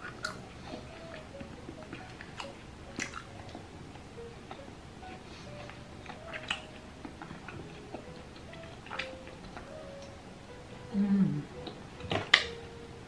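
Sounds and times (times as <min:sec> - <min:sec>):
person chewing food: 0:00.0 - 0:10.2.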